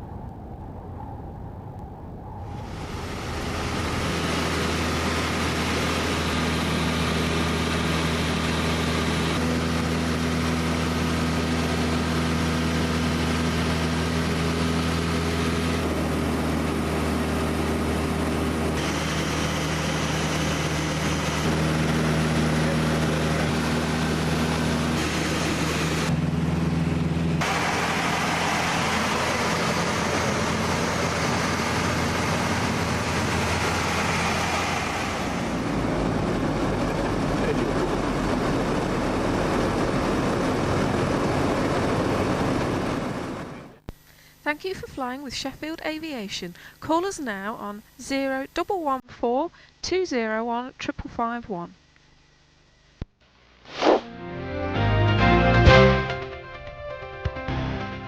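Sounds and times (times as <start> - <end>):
aircraft piston engine droning: 0.0 - 44.5.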